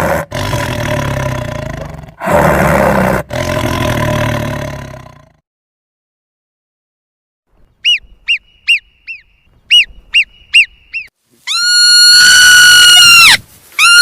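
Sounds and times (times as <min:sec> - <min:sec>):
animal chirping: 0:07.8 - 0:12.3
long shrill animal call: 0:11.0 - 0:14.0.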